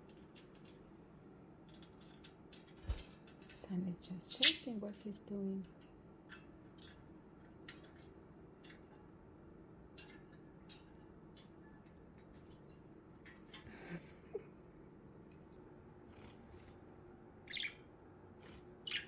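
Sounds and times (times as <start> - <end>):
budgies moving on cage: 0.1 - 4.8, 5.8 - 9.1, 9.9 - 13.7, 15.2 - 17.7.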